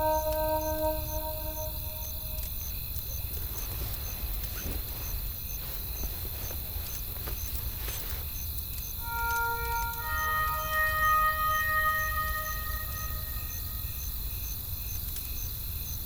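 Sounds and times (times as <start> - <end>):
faint high chirp: 0.0 - 2.5, 9.0 - 14.0.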